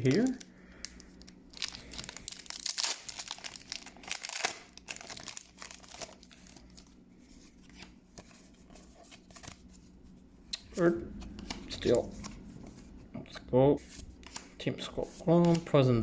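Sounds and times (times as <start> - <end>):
foil wrapper crinkling and tearing: 0.0 - 6.9
handling cards: 0.0 - 16.0.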